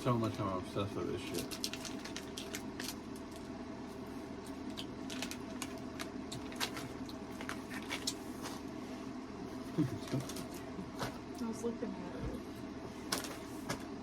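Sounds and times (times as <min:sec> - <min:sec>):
steady low hum: 0:00.0 - 0:14.0
snack packaging crinkling: 0:01.1 - 0:03.6, 0:04.3 - 0:08.8, 0:09.8 - 0:11.2, 0:13.0 - 0:14.0.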